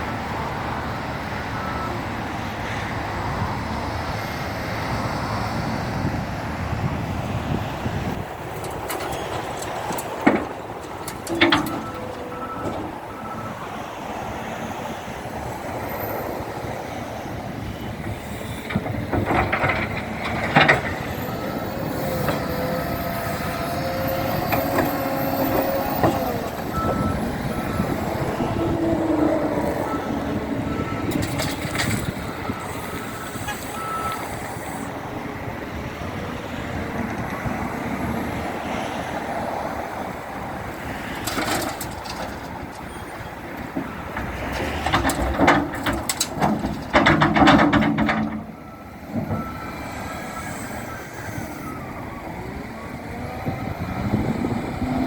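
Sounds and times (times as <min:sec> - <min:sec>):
loader engine running: 0:00.0 - 0:55.0
reversing alarm beeping: 0:20.8 - 0:34.8, 0:48.1 - 0:55.0.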